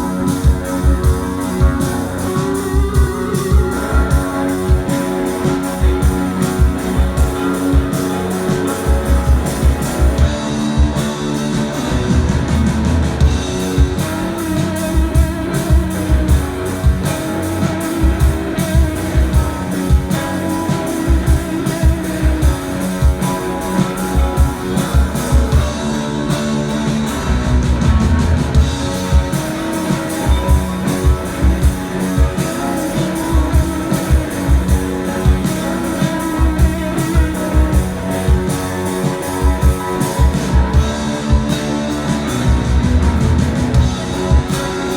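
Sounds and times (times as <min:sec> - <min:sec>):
bass guitar: 0:00.0 - 0:44.9
electric guitars: 0:00.0 - 0:44.9
steady drumbeat: 0:00.0 - 0:44.9.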